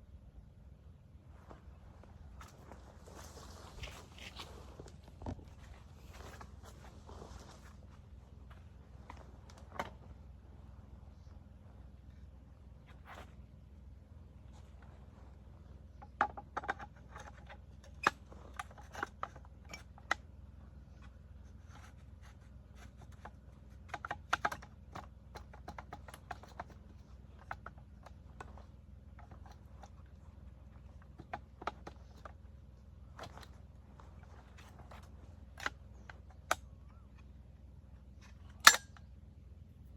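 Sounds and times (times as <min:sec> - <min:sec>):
metallic clicks of gun parts: 0:38.3 - 0:39.1.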